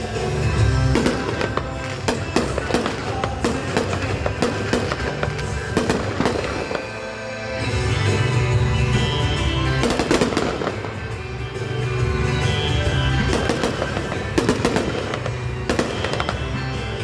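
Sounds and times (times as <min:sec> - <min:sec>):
fireworks bursting and crackling: 0:00.0 - 0:17.0
music playing: 0:00.0 - 0:17.0.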